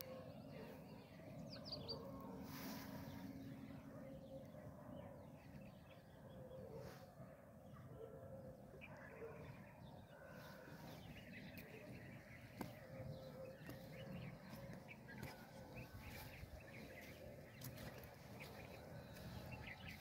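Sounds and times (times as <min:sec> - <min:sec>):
small birds chirping: 0:08.8 - 0:20.0.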